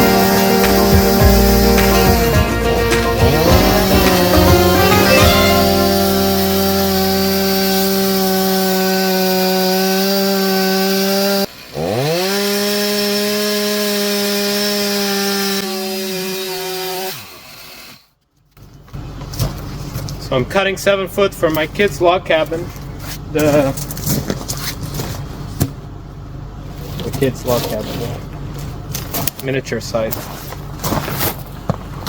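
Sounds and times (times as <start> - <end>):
chainsaw cutting a log: 0.0 - 18.1.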